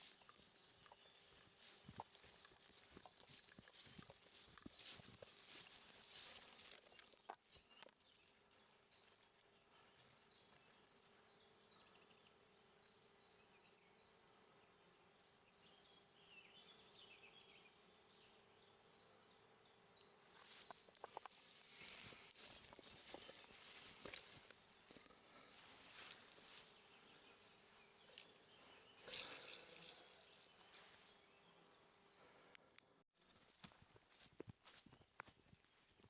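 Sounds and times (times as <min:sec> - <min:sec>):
faint chirps: 0:19.4 - 0:32.8.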